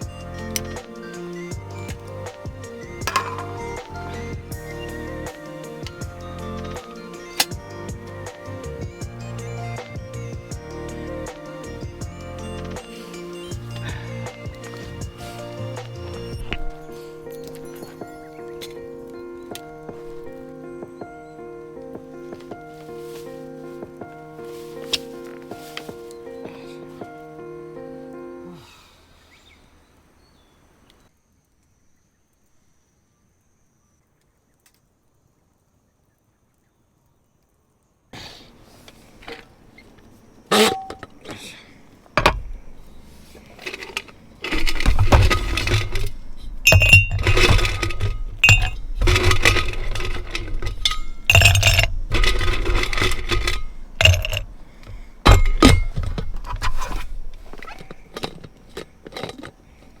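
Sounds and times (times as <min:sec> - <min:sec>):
hard objects clinking and clattering: 0:03.0 - 0:03.9, 0:13.5 - 0:18.8, 0:40.5 - 0:41.3, 0:42.2 - 1:00.0.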